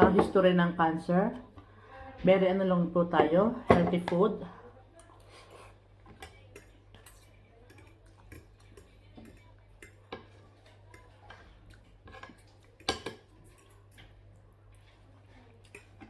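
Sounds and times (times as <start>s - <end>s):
cutlery clinking on dishes: 5.0s - 14.2s, 14.8s - 16.0s.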